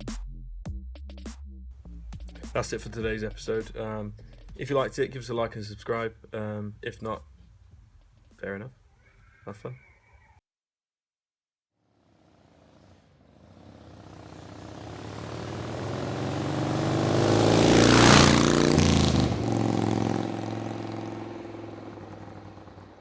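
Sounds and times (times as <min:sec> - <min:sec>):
vehicle engine passing by: 0:11.9 - 0:23.0.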